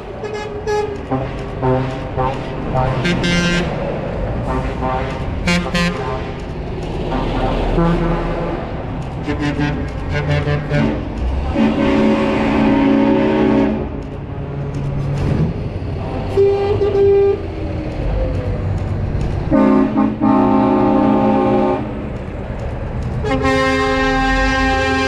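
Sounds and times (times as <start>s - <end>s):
truck air horns honking: 0.0s - 3.8s, 4.4s - 6.5s, 7.1s - 14.1s, 16.3s - 17.6s, 19.5s - 22.0s, 23.2s - 25.0s
truck engines rumbling: 0.0s - 25.0s.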